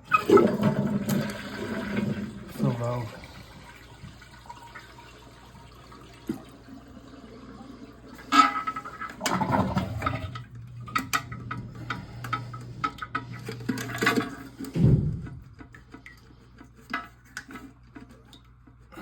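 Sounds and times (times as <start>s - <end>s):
pump humming: 0.0s - 16.5s.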